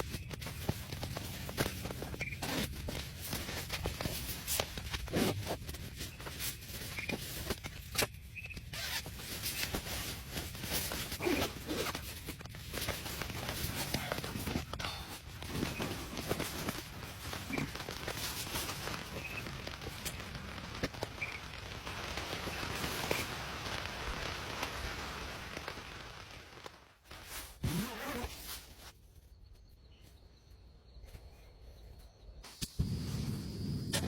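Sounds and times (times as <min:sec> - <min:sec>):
rustling and scraping: 0:00.0 - 0:23.4.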